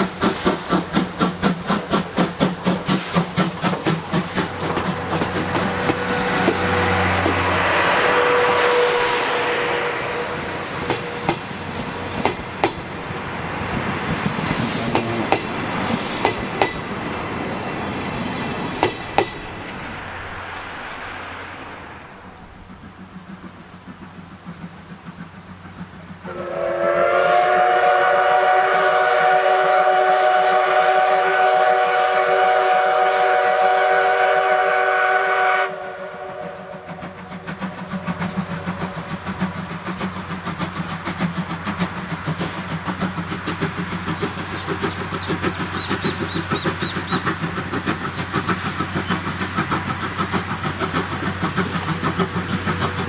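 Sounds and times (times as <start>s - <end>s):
locomotive exhaust chuffing: 0.0s - 53.0s
steam whistle blast: 4.5s - 11.5s, 14.5s - 16.8s, 26.2s - 37.2s.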